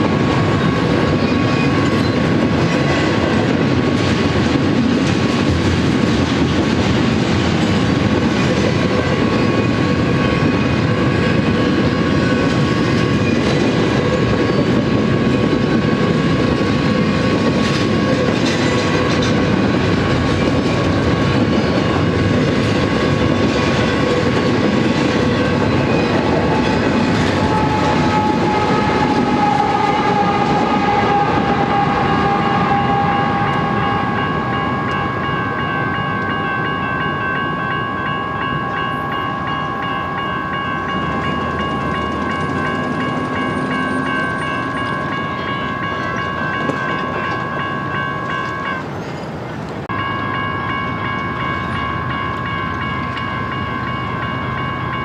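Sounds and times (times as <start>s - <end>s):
train wheels clacking over rail joints: 0.0s - 32.4s
crossing bell ringing: 7.0s - 55.0s.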